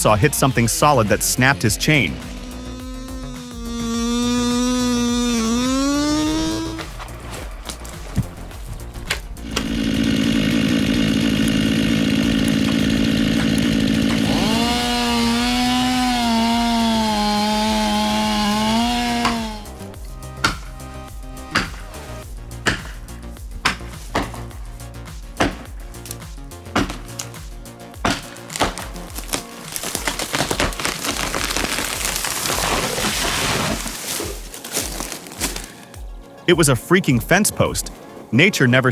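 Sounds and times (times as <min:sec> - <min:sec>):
wood crackling and splintering: 0:00.0 - 0:19.8, 0:28.0 - 0:36.0
chainsaw cutting tree trunk: 0:00.0 - 0:24.6, 0:25.4 - 0:35.7
background music with bass beat: 0:00.0 - 0:31.3, 0:33.6 - 0:38.0.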